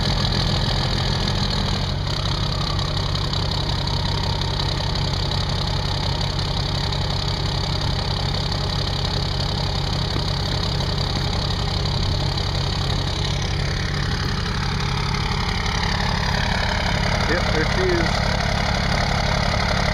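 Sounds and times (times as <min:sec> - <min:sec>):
diesel engine idling clatter: 0:00.0 - 0:19.9.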